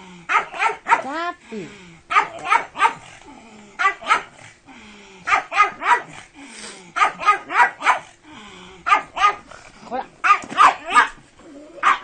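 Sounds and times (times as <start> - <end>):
dog barking: 0.3 - 1.1, 2.1 - 3.1, 3.8 - 4.4, 5.3 - 6.2, 7.0 - 8.1, 8.8 - 9.5, 10.2 - 11.2, 11.8 - 12.0.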